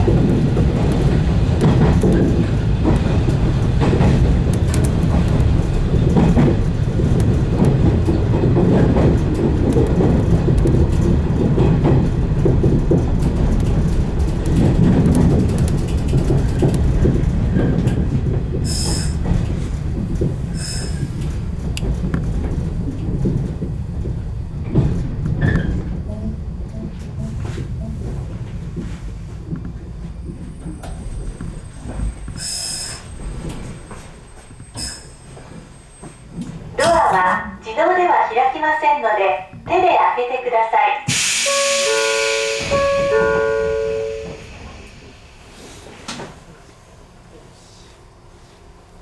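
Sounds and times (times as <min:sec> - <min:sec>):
electric train rumbling along track: 0:00.0 - 0:49.0
brief high-pitched sounds: 0:41.3 - 0:45.5.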